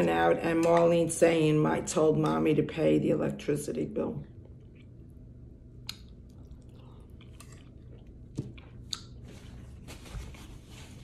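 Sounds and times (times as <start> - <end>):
low steady hum: 0.0 - 11.0
person chewing: 5.8 - 9.3.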